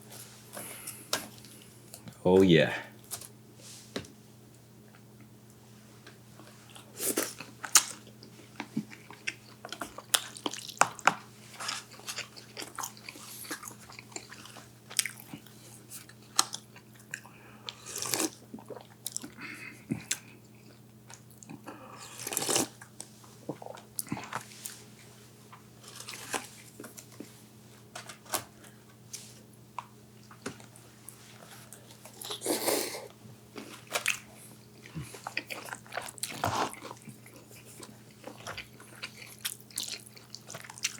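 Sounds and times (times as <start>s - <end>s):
crunchy bites and chewing: 22.0s - 22.8s.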